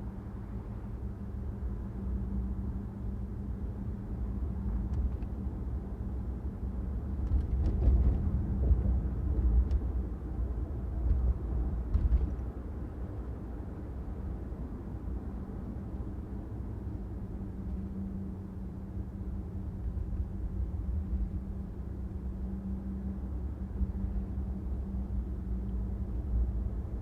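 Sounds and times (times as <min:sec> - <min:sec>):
car driving low rumble: 0:00.0 - 0:27.0
faint steady hum: 0:00.0 - 0:27.0
road bumps: 0:07.1 - 0:10.1, 0:10.8 - 0:12.7.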